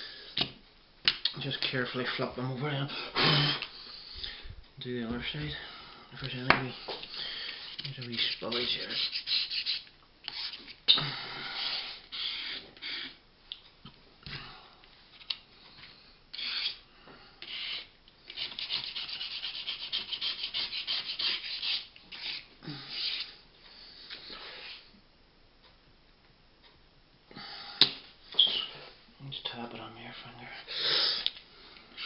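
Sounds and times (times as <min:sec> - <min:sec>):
rubbing and scraping on a workpiece: 0:07.7 - 0:10.6, 0:16.4 - 0:16.8, 0:17.4 - 0:23.4.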